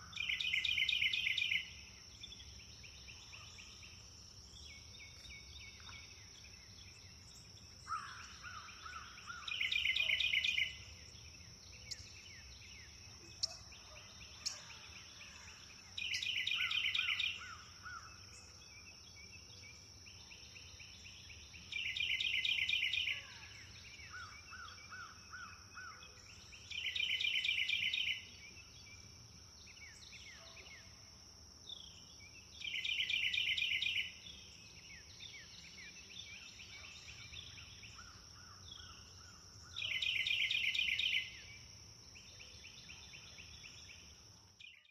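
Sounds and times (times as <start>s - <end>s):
soft bird calls and chirps: 0.0s - 44.9s.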